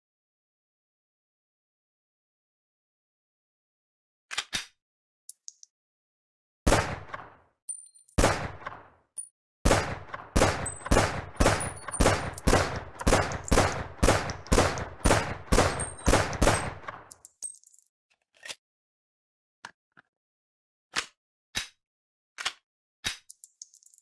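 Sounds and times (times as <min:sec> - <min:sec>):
gunshots: 0:06.7 - 0:07.4, 0:08.2 - 0:09.0, 0:09.6 - 0:17.1.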